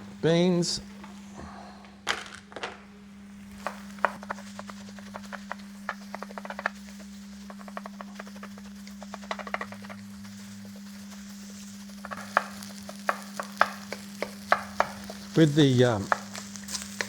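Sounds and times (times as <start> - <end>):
faint sizzle: 2.9 - 17.0.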